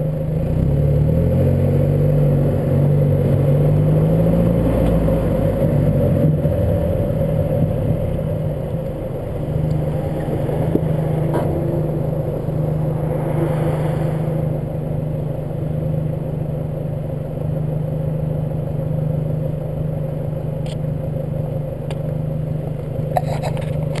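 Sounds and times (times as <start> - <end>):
car engine and road noise: 0.0 - 24.0
suspension clanks: 9.6 - 12.6, 22.8 - 24.0.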